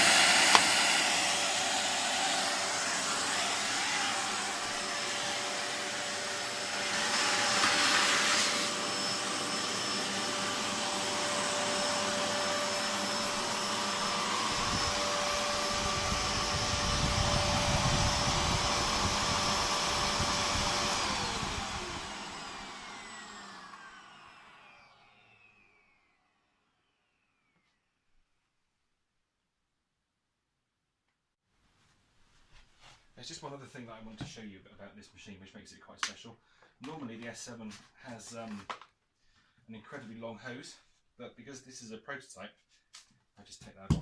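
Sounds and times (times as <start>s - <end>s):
vacuum motor spinning down: 0.0s - 27.8s
vacuum cleaner whine: 0.0s - 28.1s.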